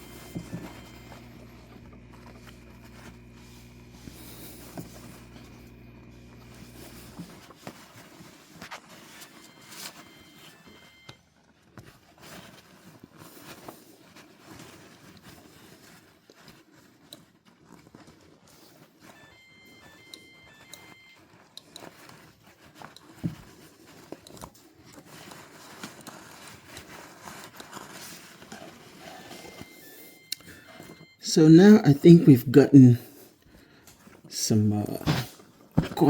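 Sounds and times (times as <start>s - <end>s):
low electrical hum: 0.0s - 8.4s
paper towel wiping: 0.0s - 11.0s.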